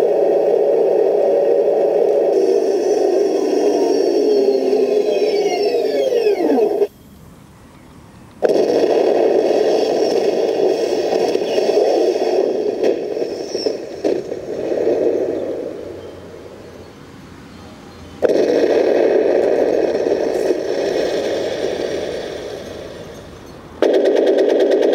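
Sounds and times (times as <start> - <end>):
motor whine falling in pitch: 2.0 - 7.0.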